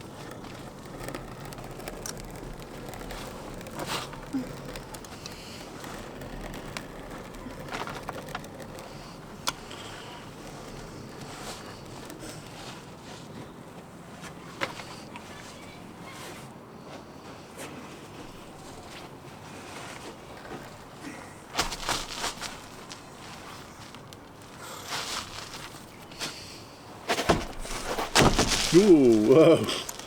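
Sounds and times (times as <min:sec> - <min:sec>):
taps and knocks on shed roof: 0:27.1 - 0:29.3.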